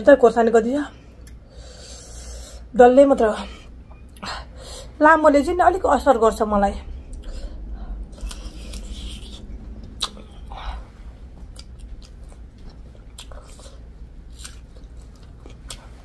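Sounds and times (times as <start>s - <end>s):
wet chewing: 8.1s - 10.4s, 11.4s - 16.0s.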